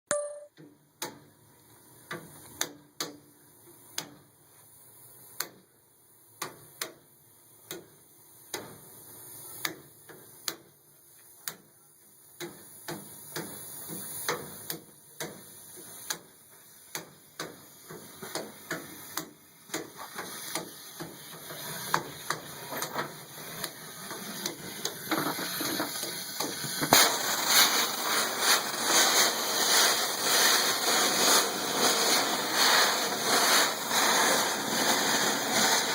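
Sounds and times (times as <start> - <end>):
rushing hiss of air: 12.6 - 35.9.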